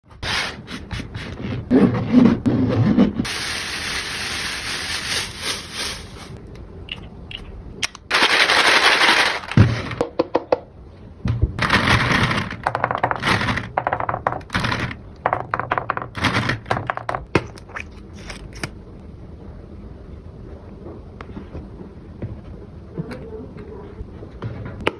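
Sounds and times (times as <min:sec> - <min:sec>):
packaging ripping and crinkling: 0:08.1 - 0:10.0.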